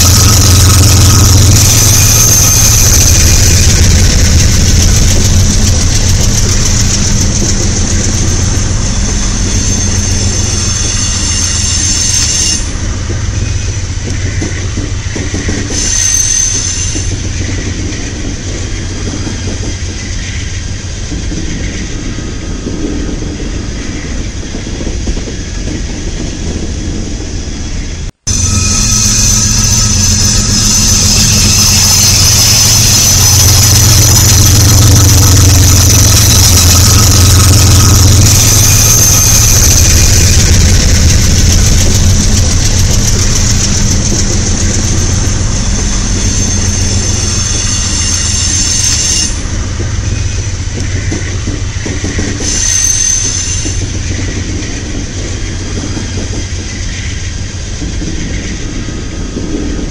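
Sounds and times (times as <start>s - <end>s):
high-pitched wheel squeal: 0.0s - 14.5s, 15.4s - 17.6s, 28.3s - 54.8s
wheels clicking over rail joints: 0.0s - 27.3s, 28.3s - 59.9s
heavy low train rumble: 0.0s - 59.9s.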